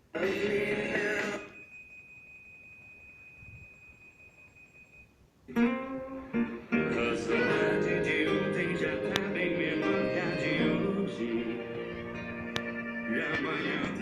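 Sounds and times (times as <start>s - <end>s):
faint high radio whistle: 1.3s - 5.2s
guitar music on radio: 5.5s - 14.0s.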